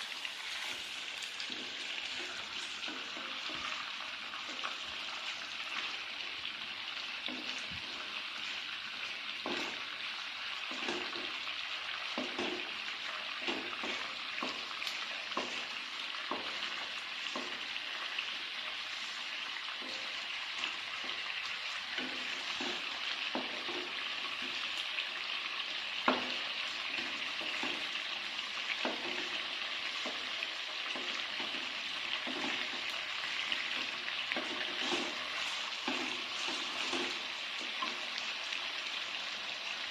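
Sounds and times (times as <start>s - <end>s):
food sizzling in a pan: 0.0s - 39.9s
utensil knocking on pan: 15.3s - 17.6s, 22.0s - 24.0s.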